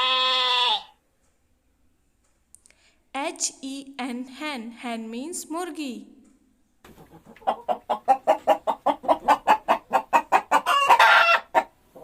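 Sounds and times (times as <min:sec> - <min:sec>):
hen clucking and squawking: 0:06.9 - 0:12.0.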